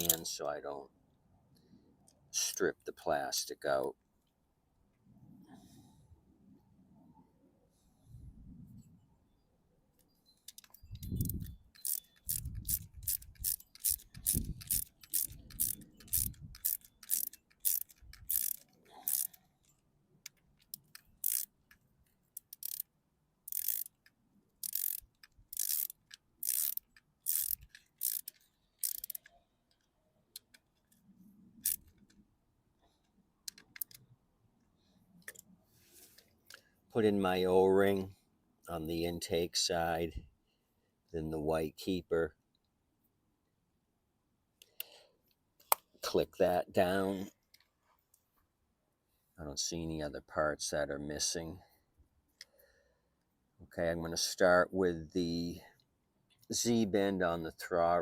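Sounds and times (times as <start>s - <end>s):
hand ratchet clicking: 0.0s - 0.2s, 10.5s - 19.4s, 20.2s - 21.8s, 22.4s - 22.9s, 23.5s - 29.8s, 33.5s - 34.0s.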